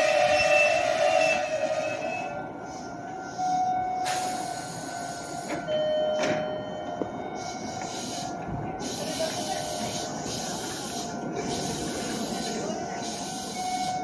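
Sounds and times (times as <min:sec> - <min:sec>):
train motor and brake whine: 0:00.0 - 0:14.0
compressed air hisses: 0:04.1 - 0:05.6, 0:07.8 - 0:13.6.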